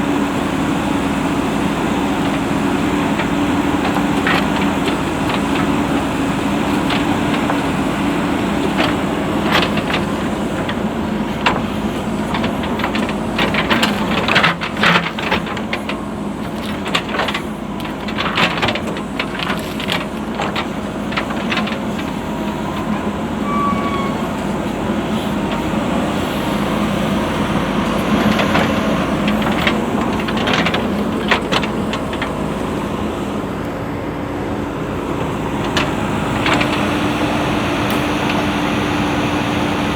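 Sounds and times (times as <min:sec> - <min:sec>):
diesel engine running under load: 0:00.0 - 0:39.9
sharp knocks and cracks: 0:02.2 - 0:22.9, 0:27.9 - 0:32.4.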